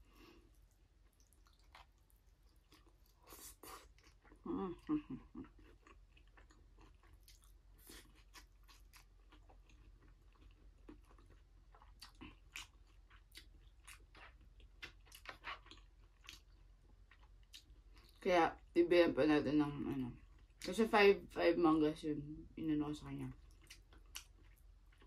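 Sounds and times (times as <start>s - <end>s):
person chewing food: 0.0s - 18.2s, 23.4s - 25.0s.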